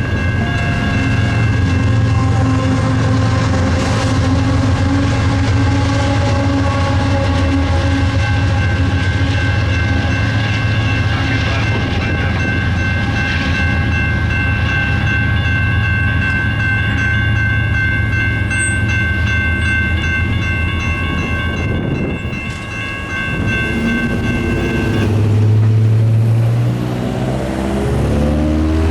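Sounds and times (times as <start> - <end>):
crossing warning bells ringing: 0.0 - 28.9
train rumbling past: 0.0 - 28.9
vehicle engine pulling away: 23.7 - 28.9.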